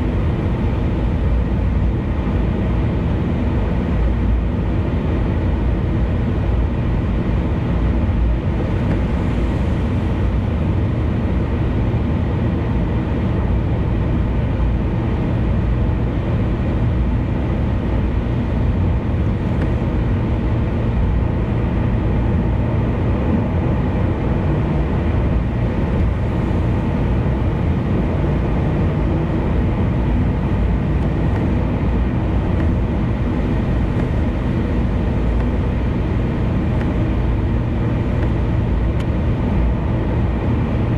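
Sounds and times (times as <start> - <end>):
car engine noise: 0.0 - 40.9
tyre and road rumble: 18.1 - 40.9.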